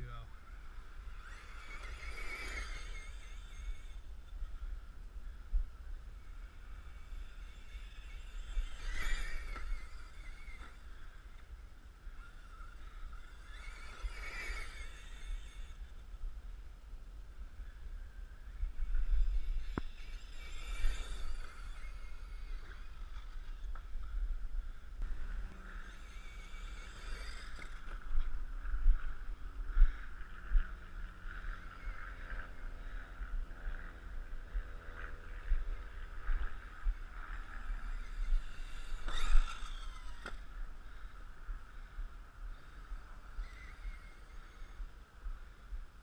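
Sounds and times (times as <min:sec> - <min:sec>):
toy truck electric motor whining: 0:00.6 - 0:04.8, 0:06.2 - 0:16.1, 0:17.6 - 0:24.0, 0:25.1 - 0:28.3, 0:34.5 - 0:45.5.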